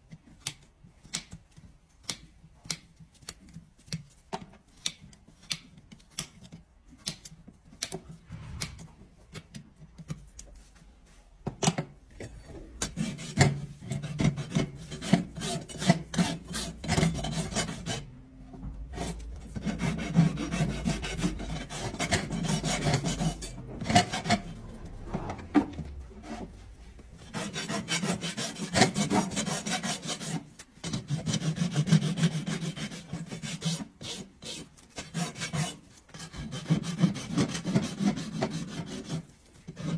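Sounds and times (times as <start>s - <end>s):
rasp filing hoof: 27.3s - 39.9s.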